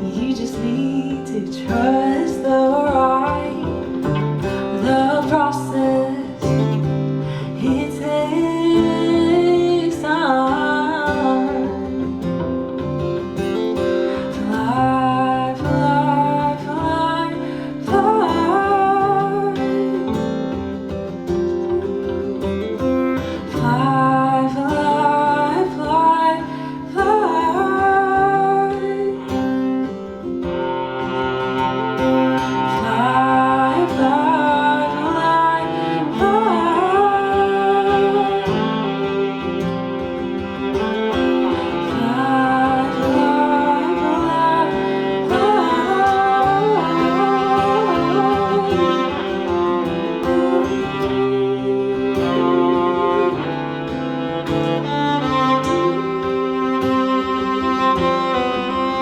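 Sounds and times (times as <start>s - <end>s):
acoustic guitar: 0.0s - 59.0s
cello: 0.0s - 59.0s.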